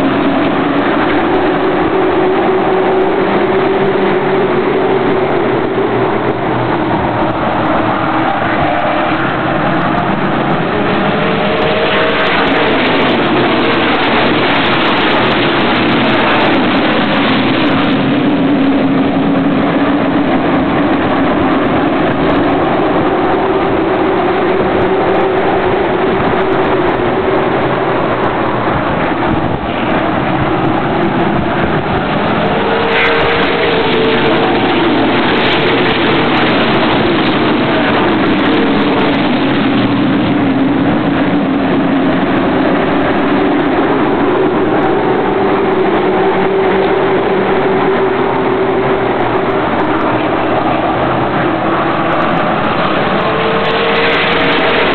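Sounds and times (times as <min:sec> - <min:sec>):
race car engines droning: 0:00.0 - 0:54.9.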